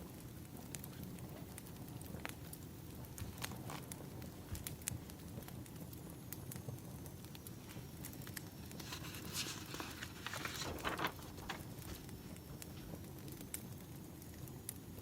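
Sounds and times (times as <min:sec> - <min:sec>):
wood fire crackling: 0:00.0 - 0:15.0
low steady rumble: 0:09.5 - 0:11.6.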